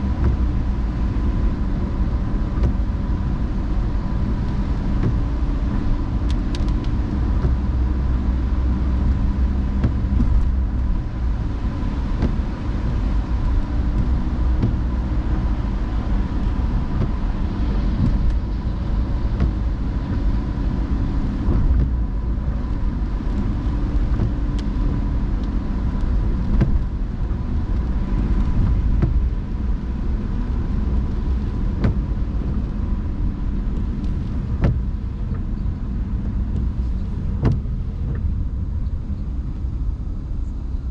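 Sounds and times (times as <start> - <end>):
road and engine rumble: 0.0 - 40.9
light ticks: 4.4 - 7.6, 22.7 - 27.0, 33.6 - 35.5, 36.2 - 39.7.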